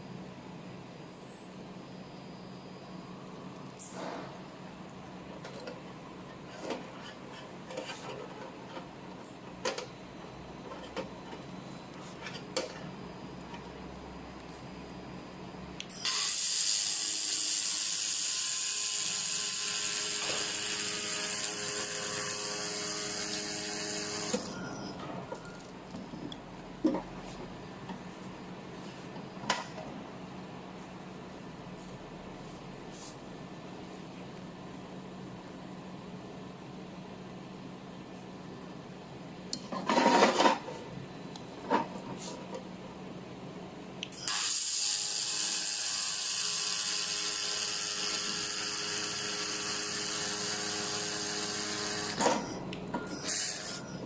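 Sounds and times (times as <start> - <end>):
laser welding machine hissing: 15.9 - 24.8, 44.1 - 54.0.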